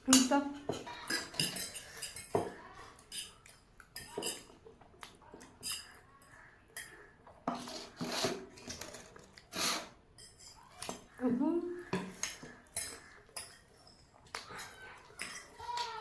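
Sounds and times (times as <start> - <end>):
cutlery clinking against dishes: 0.0 - 11.2, 11.8 - 16.0.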